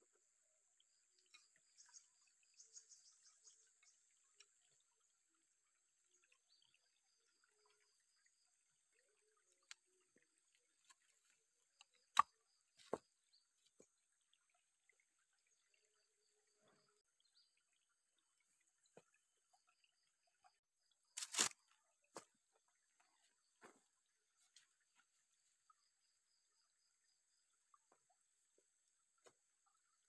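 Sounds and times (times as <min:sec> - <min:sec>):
small ticks: 0:09.0 - 0:13.0.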